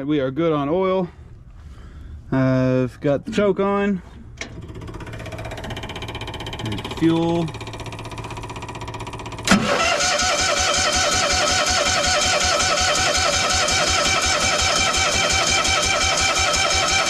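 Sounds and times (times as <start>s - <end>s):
engine cranking with whine: 4.1s - 17.0s.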